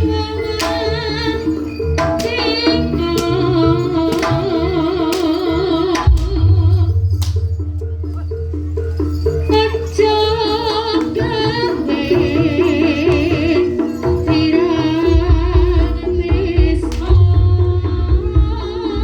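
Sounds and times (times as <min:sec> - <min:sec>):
hand drumming: 0:00.0 - 0:09.7.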